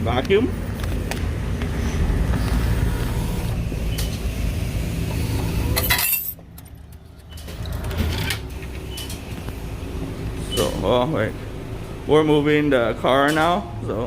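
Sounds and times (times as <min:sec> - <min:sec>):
clinking clatter: 0:05.8 - 0:06.8.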